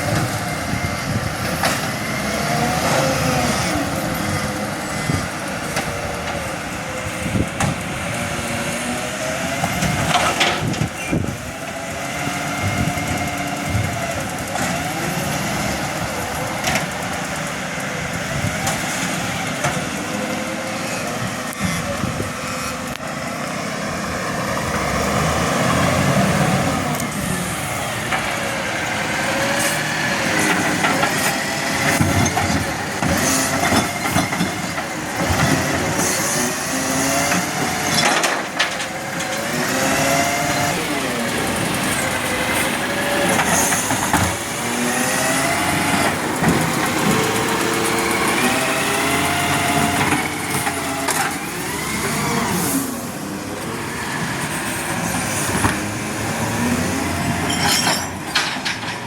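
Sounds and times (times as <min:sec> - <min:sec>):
garbage truck engine running: 0:00.0 - 0:59.0
metal clanks: 0:57.3 - 0:59.0.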